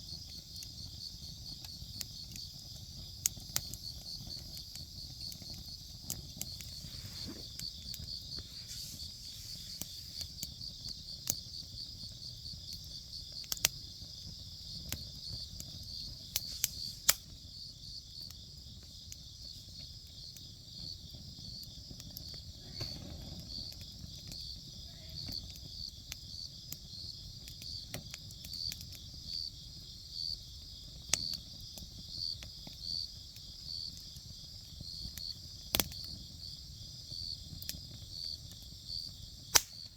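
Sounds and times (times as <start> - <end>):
campfire crackling and popping: 0.0 - 39.9
insects chirping: 0.0 - 39.9.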